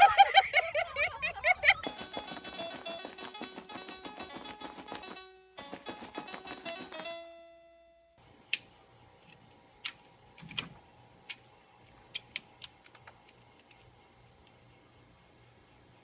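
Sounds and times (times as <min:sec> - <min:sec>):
held music chord: 0:02.3 - 0:08.2.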